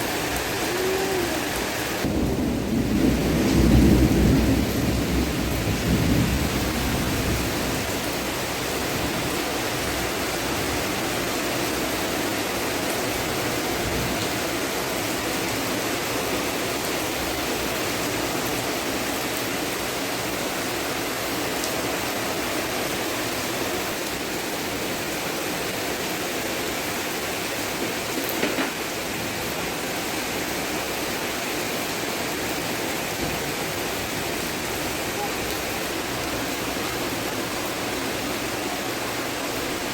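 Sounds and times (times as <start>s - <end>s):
heavy rain hiss: 0.0s - 39.9s
thunder rumble: 1.9s - 8.0s.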